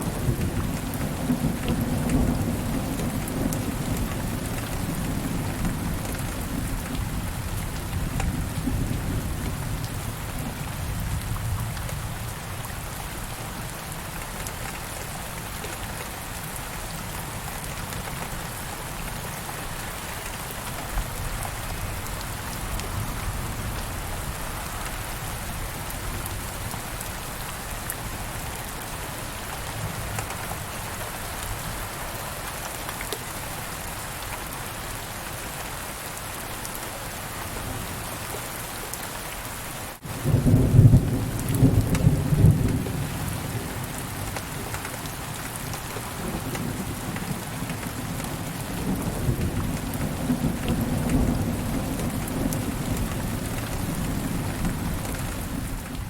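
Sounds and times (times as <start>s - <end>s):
steady rain falling: 0.0s - 56.0s
low rumble of thunder: 40.1s - 44.2s, 46.2s - 56.0s.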